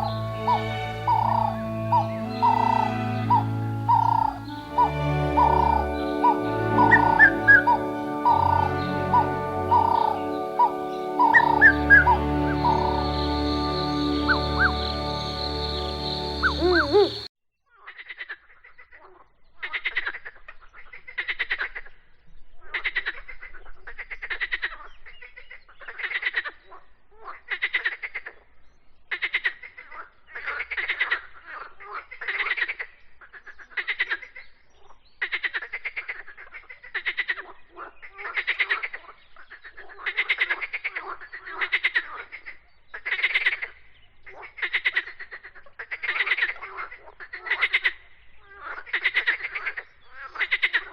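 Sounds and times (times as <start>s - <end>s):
frogs calling in pulsed trills: 0.0s - 17.3s.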